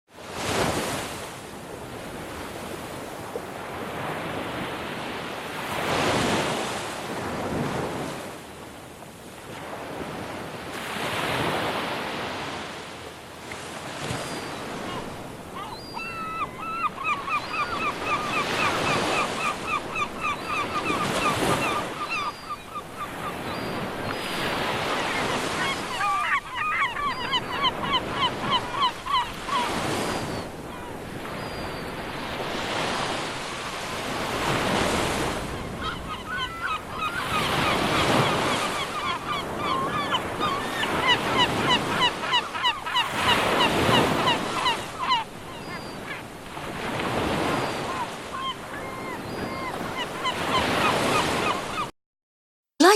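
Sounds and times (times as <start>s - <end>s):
wind: 0.1s - 51.9s
gulls calling: 14.0s - 32.0s, 35.1s - 46.3s.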